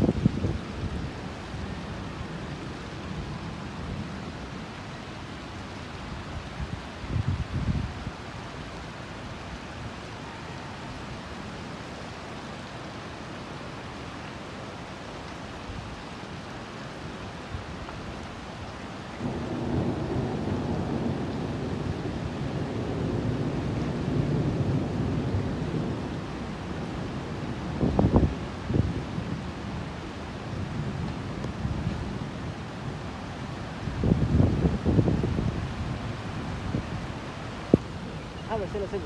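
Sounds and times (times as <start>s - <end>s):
rain hissing: 14.8s - 21.9s, 24.3s - 39.0s
thunder rumbling: 19.2s - 29.8s, 33.8s - 39.0s.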